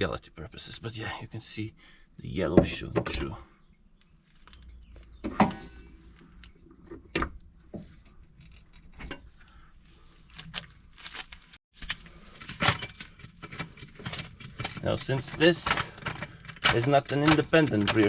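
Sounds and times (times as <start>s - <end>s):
metallic clinks of tools and parts: 11.8s - 18.0s.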